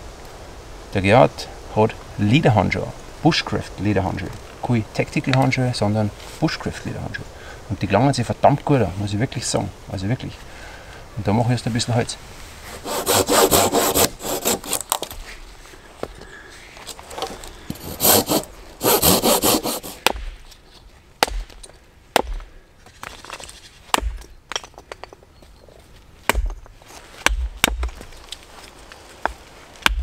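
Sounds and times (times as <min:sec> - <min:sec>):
hand saw cutting wood: 0:12.7 - 0:15.1, 0:17.7 - 0:20.0.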